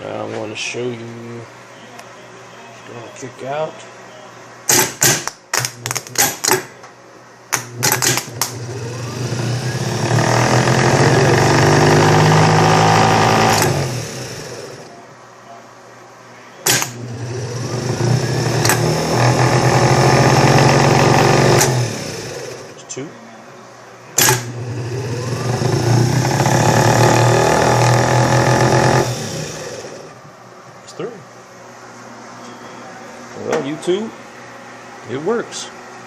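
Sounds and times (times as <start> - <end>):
starter motor spinning: 7.8 - 14.9, 16.7 - 22.7, 24.2 - 30.2.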